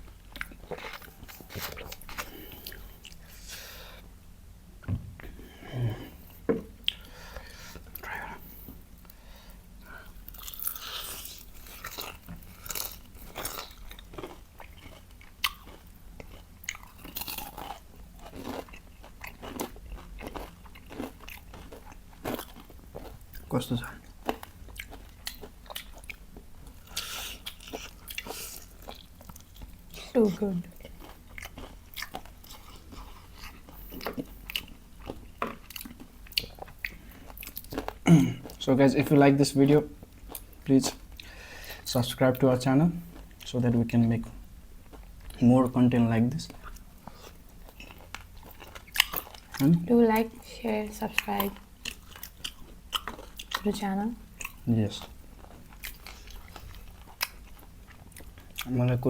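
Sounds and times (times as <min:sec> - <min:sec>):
crunchy chewing: 0:00.0 - 0:03.7, 0:09.8 - 0:39.2, 0:46.4 - 0:50.4, 0:51.0 - 0:53.7, 0:54.3 - 0:58.8.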